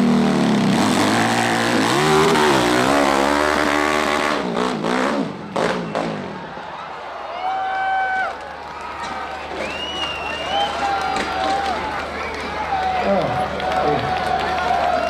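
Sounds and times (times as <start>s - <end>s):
dirt bike engine revving: 0.0s - 6.4s.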